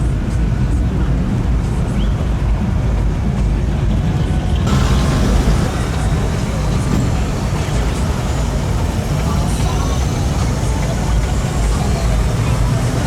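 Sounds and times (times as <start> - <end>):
car engines rumbling past: 0.0 - 13.0
loud rushing noise: 4.7 - 13.0.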